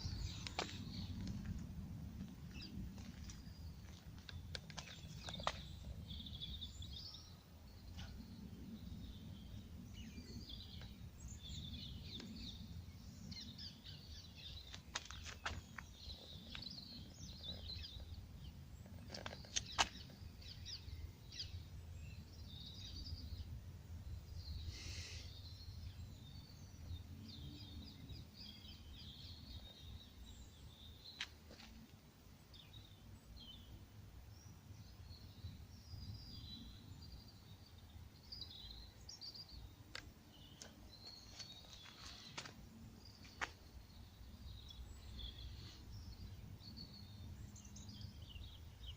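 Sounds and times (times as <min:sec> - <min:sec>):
steady low rumble: 0:00.0 - 0:24.7
small birds chirping: 0:00.0 - 0:48.9.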